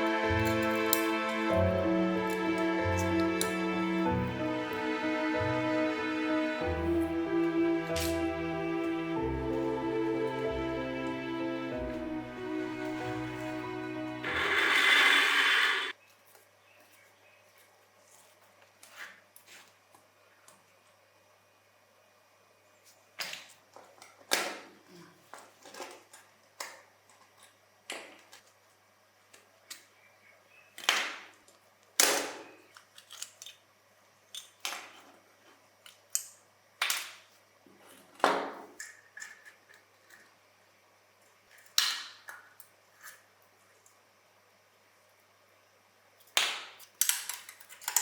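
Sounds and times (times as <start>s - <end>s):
toy truck parts clicking: 32.0s - 33.7s, 35.8s - 37.3s, 38.0s - 40.4s, 46.2s - 48.0s.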